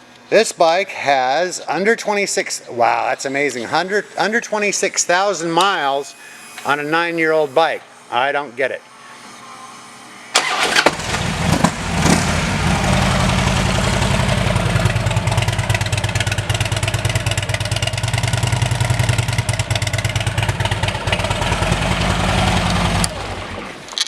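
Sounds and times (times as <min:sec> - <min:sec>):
motorcycle engine starting and idling: 0:10.4 - 0:23.9.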